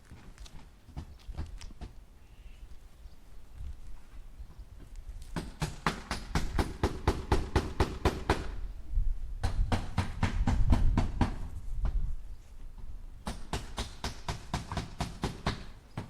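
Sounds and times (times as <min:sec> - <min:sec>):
hammer striking nails into wood: 0:05.4 - 0:08.6, 0:09.4 - 0:11.5, 0:13.2 - 0:16.0.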